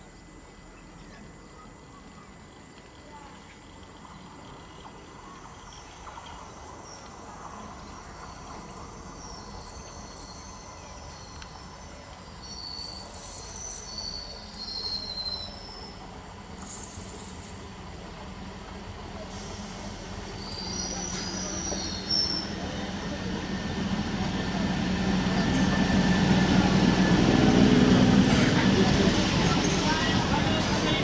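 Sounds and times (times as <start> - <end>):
train rumble approaching: 0.0 - 31.0.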